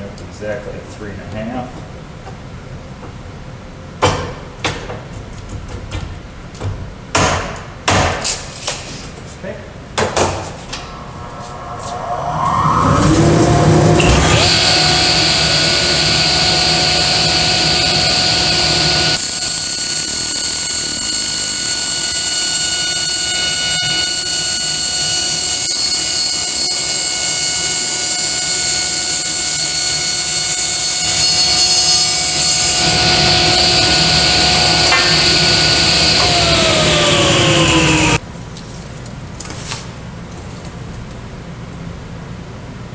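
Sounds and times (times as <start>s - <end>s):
table saw cutting plastic sheet: 12.5s - 38.2s.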